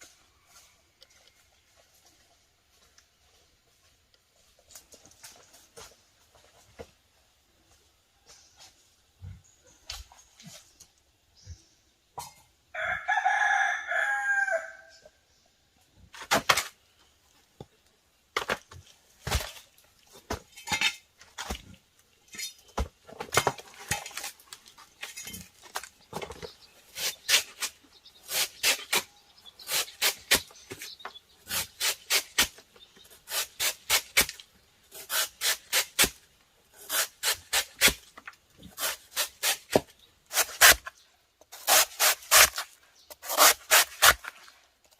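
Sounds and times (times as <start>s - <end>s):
rooster crowing: 12.7s - 15.0s
sharp knocks and scrapes: 18.4s - 44.9s.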